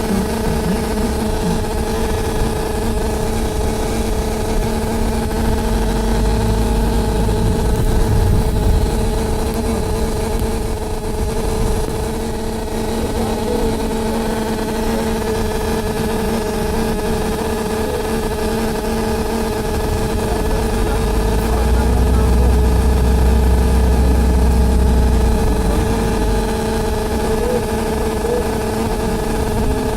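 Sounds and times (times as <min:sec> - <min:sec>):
bus engine rumble: 0:00.0 - 0:29.9
steady two-pitch hum: 0:00.0 - 0:29.9.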